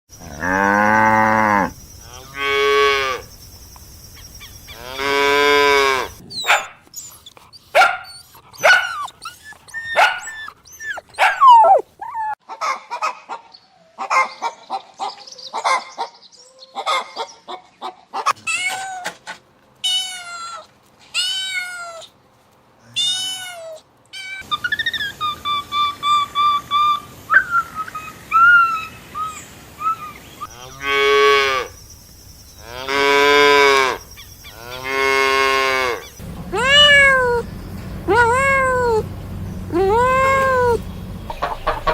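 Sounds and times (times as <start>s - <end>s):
cow mooing: 0.2s - 3.3s, 4.7s - 6.2s, 32.6s - 34.0s, 34.6s - 41.9s.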